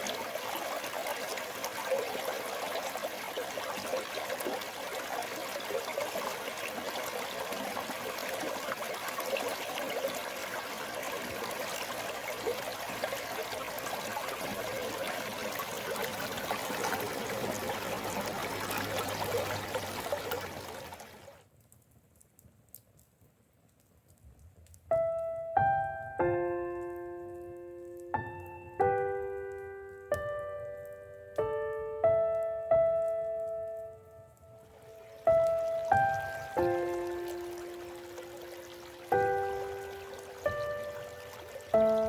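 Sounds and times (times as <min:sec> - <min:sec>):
stream water flowing: 0:00.0 - 0:21.4, 0:34.6 - 0:42.0
slow piano notes: 0:24.9 - 0:42.0.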